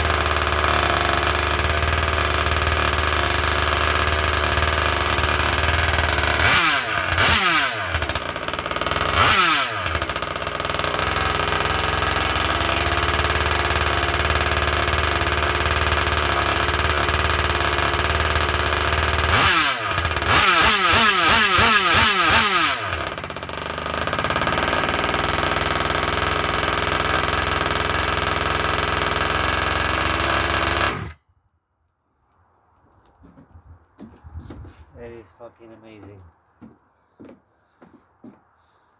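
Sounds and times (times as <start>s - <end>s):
small two-stroke engine revving: 0.0s - 31.2s.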